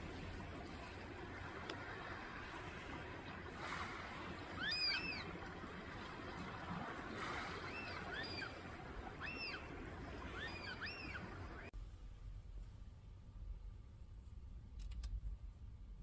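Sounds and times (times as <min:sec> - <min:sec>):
water noise: 0:00.0 - 0:11.8
high arched chirping calls: 0:04.6 - 0:05.4, 0:07.6 - 0:11.7.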